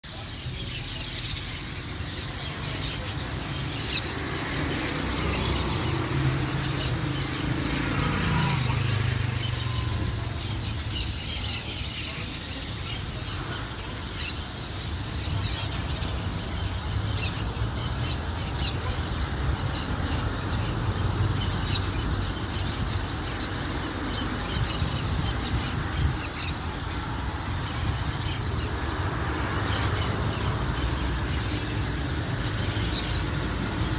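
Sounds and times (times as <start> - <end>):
small birds chirping: 0.0 - 33.9
vehicle passing by: 4.0 - 11.3.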